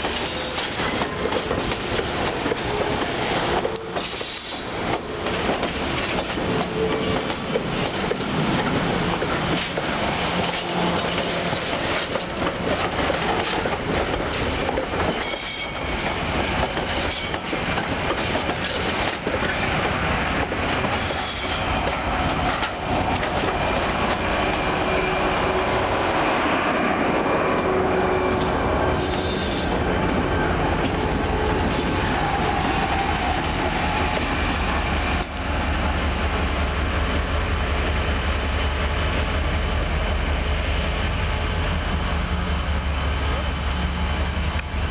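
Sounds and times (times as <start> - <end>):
rail-joint clicks: 0.0 - 24.7, 35.0 - 36.0, 44.3 - 44.9
train wheels rumbling on rail: 0.0 - 44.9
high wheel squeals: 14.3 - 44.9.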